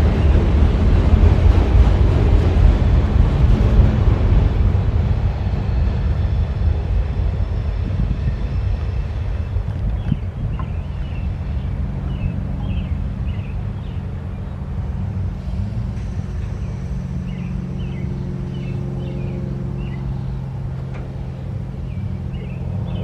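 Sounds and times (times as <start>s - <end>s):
diesel locomotive engine droning: 0.0s - 23.0s
songbirds chirping: 8.2s - 23.0s.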